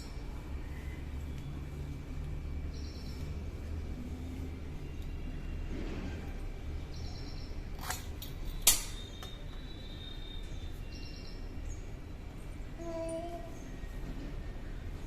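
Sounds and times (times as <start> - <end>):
bird chirps: 6.9 - 7.7, 8.9 - 12.0.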